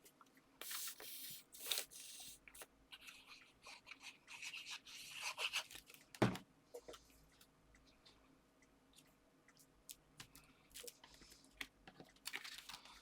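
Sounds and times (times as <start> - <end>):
paper and card rustling: 12.2 - 13.0.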